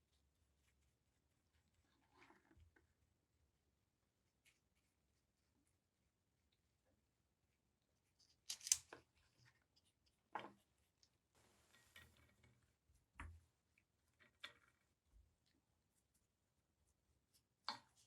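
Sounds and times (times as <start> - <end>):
tools clicking and knocking: 8.5 - 8.9.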